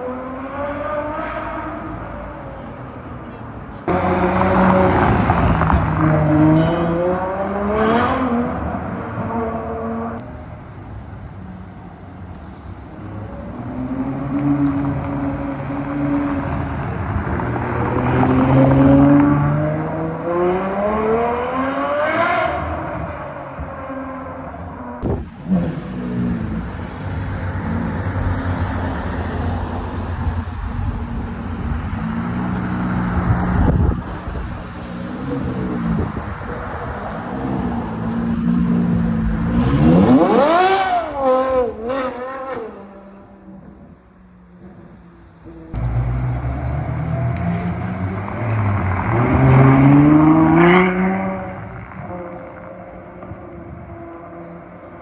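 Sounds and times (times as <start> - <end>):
car engine revving: 3.9 - 8.6, 25.0 - 43.2, 45.7 - 52.7.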